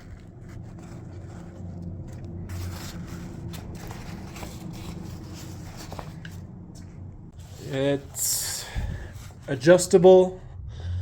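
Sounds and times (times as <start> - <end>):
low motor hum: 0.0 - 7.5.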